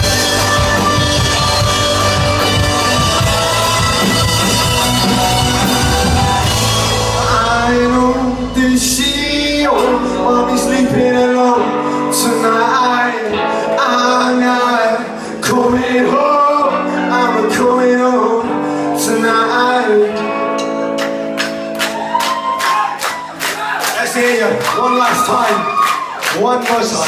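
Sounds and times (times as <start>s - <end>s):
person singing: 0.0s - 20.7s
live rock band playing: 0.0s - 27.0s.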